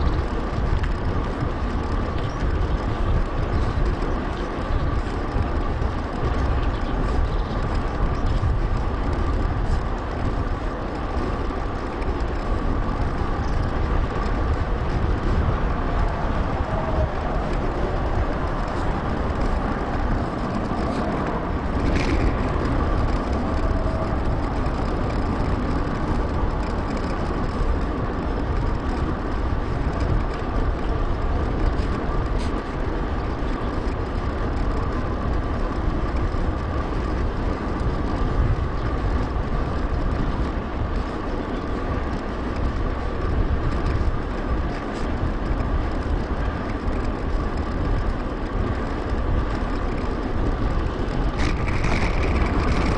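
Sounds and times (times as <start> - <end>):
bicycle tyre and road noise: 0.0 - 52.9
wind rumbling over microphone: 0.0 - 52.9.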